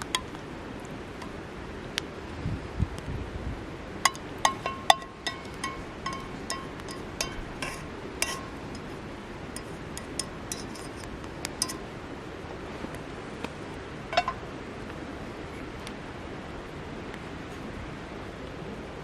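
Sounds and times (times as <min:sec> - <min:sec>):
metal utensils clinking on dishes: 0:04.1 - 0:08.9, 0:09.6 - 0:11.8, 0:14.1 - 0:14.4.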